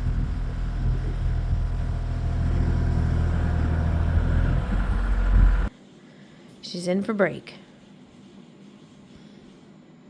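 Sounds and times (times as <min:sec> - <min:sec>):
tractor engine running: 0:00.0 - 0:05.7
wind rumble on microphone: 0:00.0 - 0:05.7.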